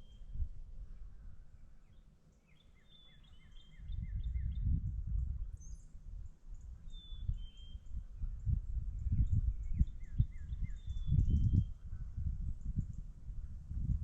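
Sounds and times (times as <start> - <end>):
songbirds chirping: 0.0 - 14.0
low rumble with thumps: 4.0 - 5.6.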